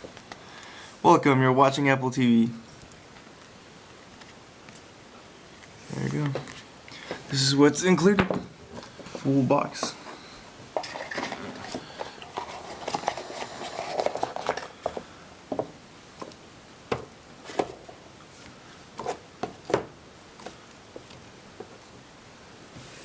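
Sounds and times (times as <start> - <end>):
packaging rustling: 10.8 - 15.0.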